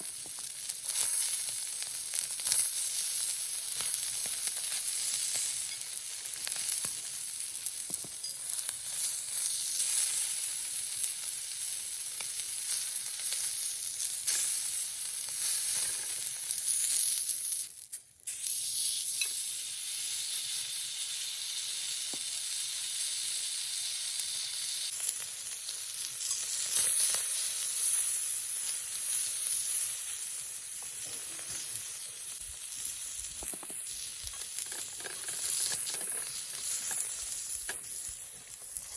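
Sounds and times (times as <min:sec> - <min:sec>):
meat sizzling on a griddle: 0:00.0 - 0:38.9
fat popping and crackling: 0:30.8 - 0:38.9.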